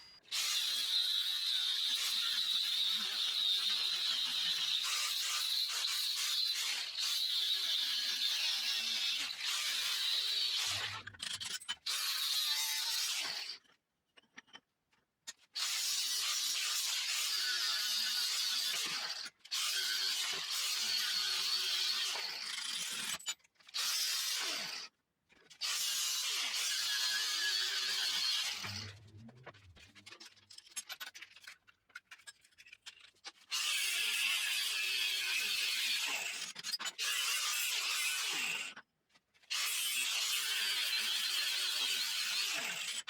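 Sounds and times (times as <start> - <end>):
power tool working metal: 25.7 - 29.6.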